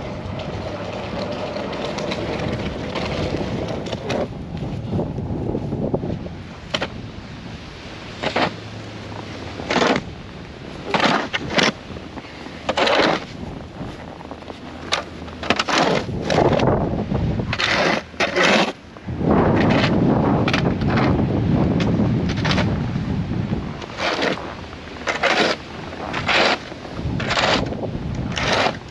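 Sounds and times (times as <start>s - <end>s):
sharp scraping or crunching: 0.0s - 7.0s, 7.8s - 22.9s, 23.5s - 28.9s
wind buffeting microphone: 0.0s - 28.9s.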